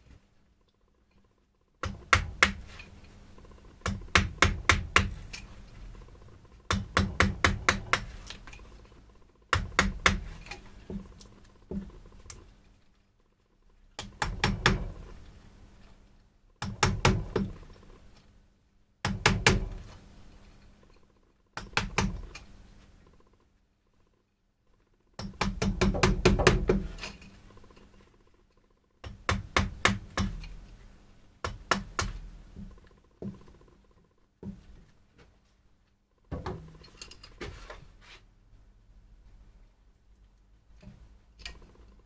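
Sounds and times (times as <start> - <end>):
mallet striking chisel into wood: 1.8 - 2.8, 3.8 - 5.5, 6.7 - 8.3, 9.5 - 11.9, 14.0 - 15.0, 16.6 - 17.6, 19.0 - 19.8, 21.6 - 22.2, 25.2 - 27.0, 29.0 - 30.6, 31.4 - 33.4.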